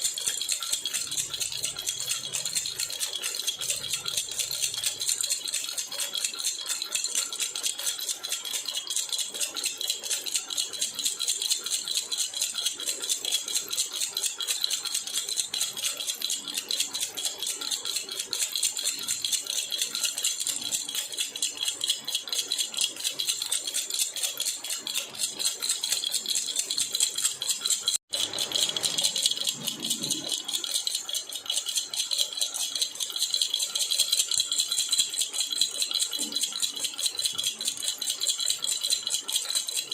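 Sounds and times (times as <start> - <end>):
baby rattle shaken: 23.5 - 37.9.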